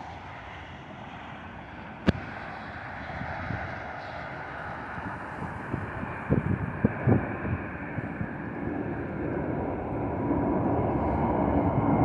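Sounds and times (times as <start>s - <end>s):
wind buffeting microphone: 2.0s - 12.0s.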